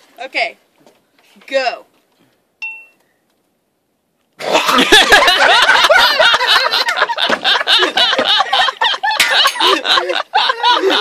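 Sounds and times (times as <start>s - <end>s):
people laughing loudly: 4.4s - 11.0s.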